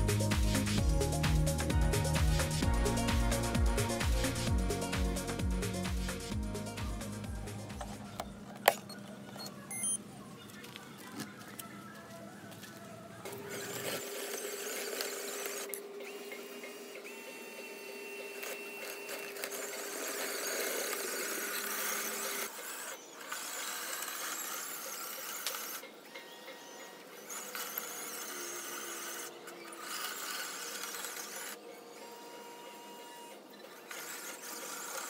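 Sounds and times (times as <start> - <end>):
small electric motors whirring: 12.5 - 35.0.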